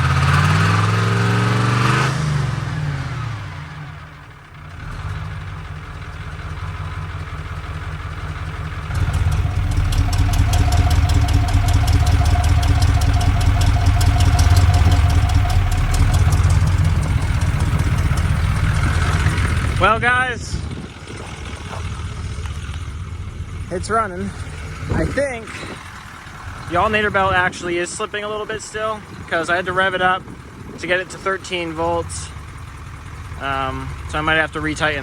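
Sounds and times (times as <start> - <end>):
diesel engine idling clatter: 0.0 - 35.0.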